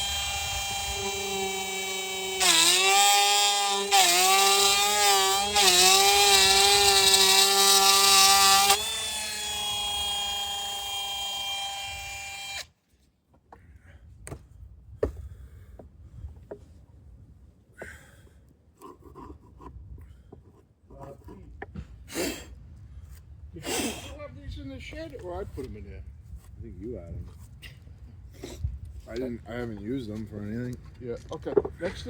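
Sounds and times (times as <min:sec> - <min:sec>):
power saw cutting wood: 0:00.0 - 0:12.7.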